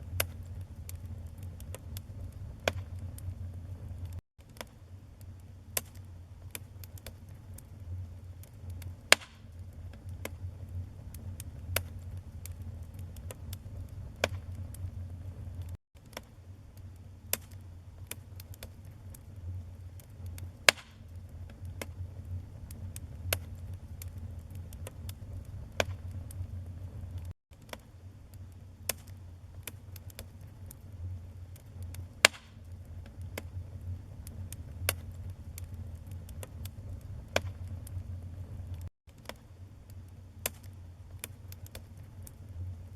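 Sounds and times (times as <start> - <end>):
fire popping: 0.0 - 42.9
low rumble of flames: 0.0 - 42.9
wood fire crackling: 0.0 - 42.9.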